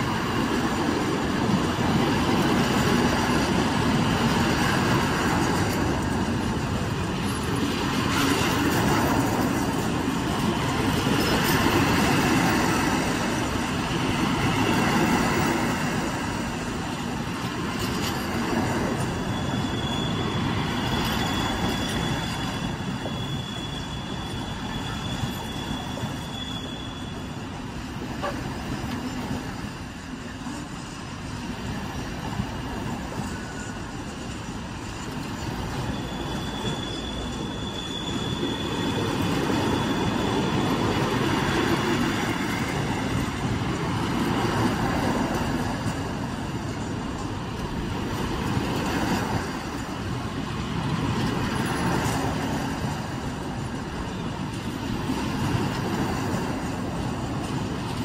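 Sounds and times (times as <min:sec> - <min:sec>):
high wheel squeal: 0:00.0 - 0:30.1, 0:32.3 - 0:58.0
train wheels rumbling on rail: 0:00.0 - 0:58.0.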